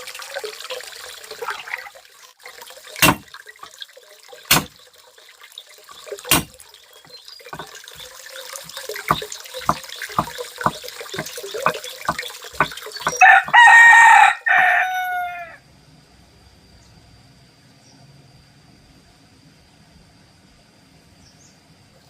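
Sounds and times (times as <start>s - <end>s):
sharp knocks: 3.0s - 3.3s, 4.5s - 4.8s, 6.3s - 6.6s, 7.6s - 8.1s, 9.0s - 13.6s
rooster crowing: 13.1s - 15.6s.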